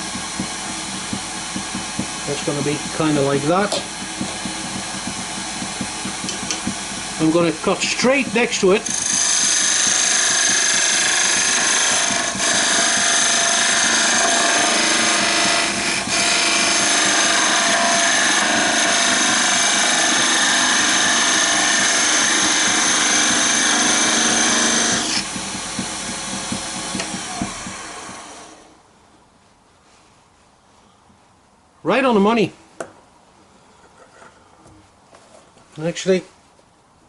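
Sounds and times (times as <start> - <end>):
turning tool scraping wood: 0.0 - 28.7
wood lathe running: 0.0 - 28.7.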